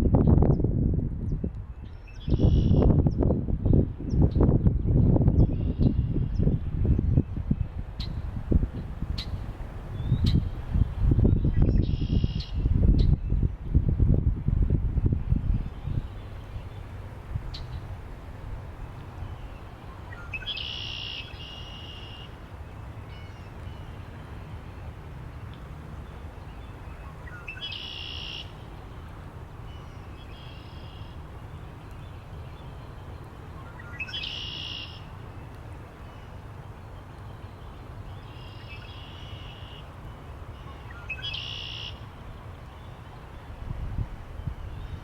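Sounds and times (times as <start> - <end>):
low wind rumble: 0.0 - 45.0
bird call: 19.4 - 22.3, 27.0 - 28.5, 33.6 - 35.1, 40.6 - 42.0.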